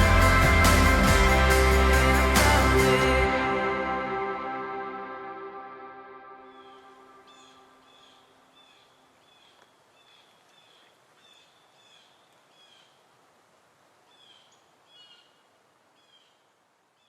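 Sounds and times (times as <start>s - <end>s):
bird chirping: 6.4s - 12.9s
soft steady hiss: 6.8s - 17.0s.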